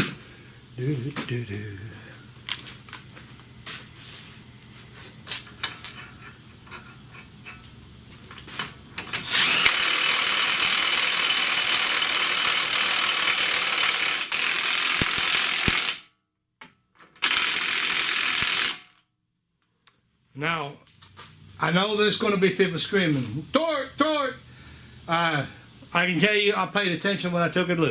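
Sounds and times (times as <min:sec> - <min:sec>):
impact wrench running: 0:09.0 - 0:16.1, 0:17.2 - 0:19.0.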